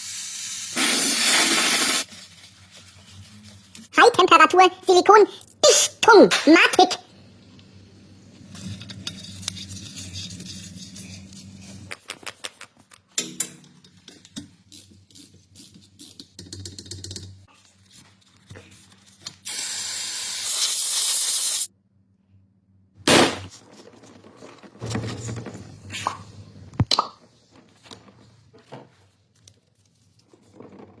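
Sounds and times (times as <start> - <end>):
spray hiss: 0.0 - 2.1, 19.6 - 21.7.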